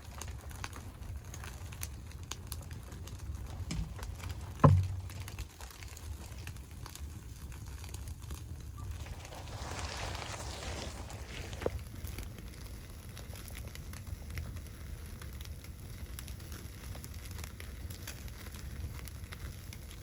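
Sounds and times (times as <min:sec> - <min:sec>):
wood fire crackling: 0:00.0 - 0:20.0
heavy thump: 0:03.7 - 0:05.2.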